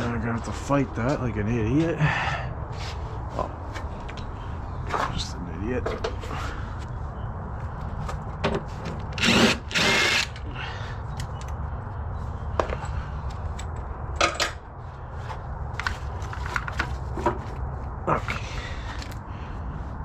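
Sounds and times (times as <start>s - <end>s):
power tool bursts: 9.2s - 10.4s.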